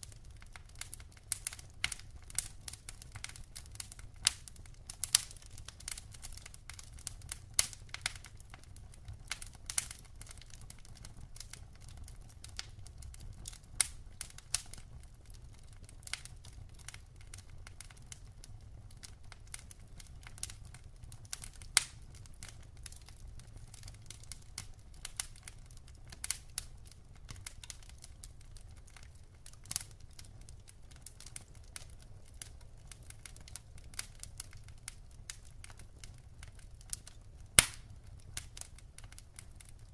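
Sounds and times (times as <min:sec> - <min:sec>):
logs crackling in fireplace: 0:00.0 - 0:39.9.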